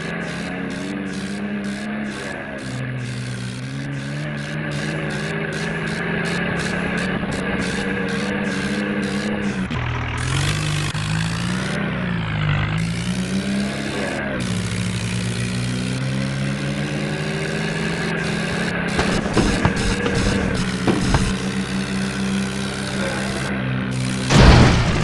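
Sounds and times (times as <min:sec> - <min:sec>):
fast rhythmic chatter: 0:00.0 - 0:10.5
tractor engine under load: 0:00.0 - 0:25.0.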